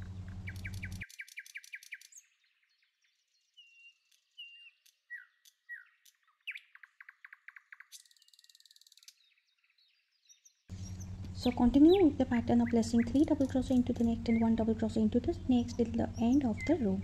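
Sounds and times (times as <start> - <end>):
low hum: 0.0 - 1.0, 10.7 - 17.0
birds chirping and singing: 0.0 - 17.0.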